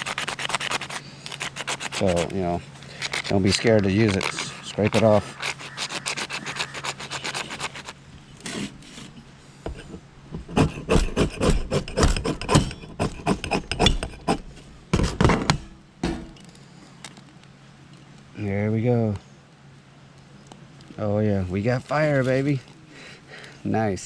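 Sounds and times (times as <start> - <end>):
fire-starter block scraped: 0.2 - 16.4.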